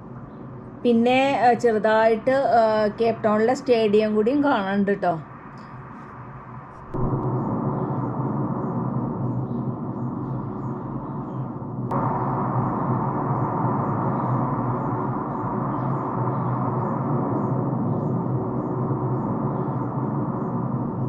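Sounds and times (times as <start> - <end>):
gong-like drone: 6.9 - 21.0.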